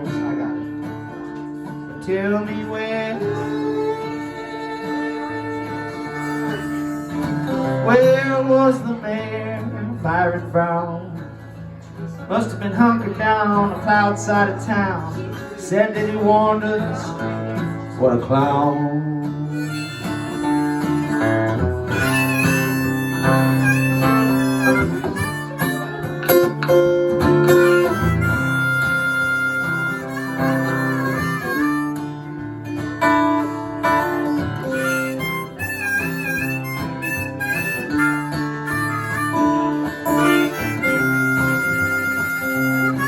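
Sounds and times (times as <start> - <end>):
acoustic guitar: 0.0 - 43.0
harmonica playing: 3.2 - 8.0, 19.5 - 43.0.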